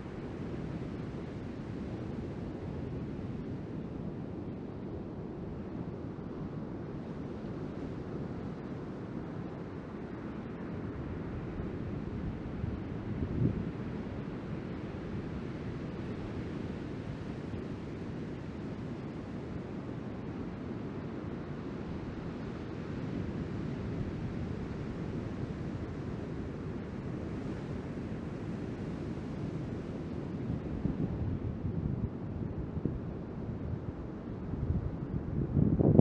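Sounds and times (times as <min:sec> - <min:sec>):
wind buffeting microphone: 0:34.6 - 0:36.0.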